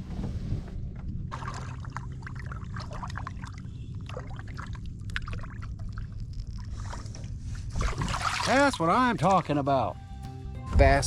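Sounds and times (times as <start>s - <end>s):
steady low rumble: 0.0s - 11.0s
water splashing and trickling: 1.3s - 9.6s.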